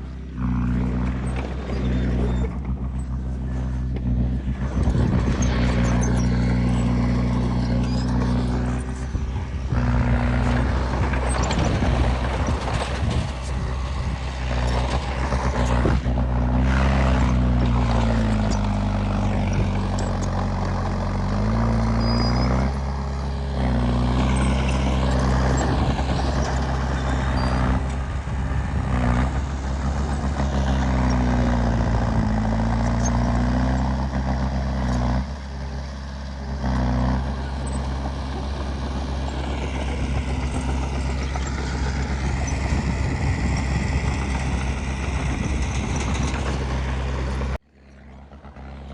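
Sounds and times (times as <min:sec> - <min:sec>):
diesel engine under load: 0:00.0 - 0:48.9.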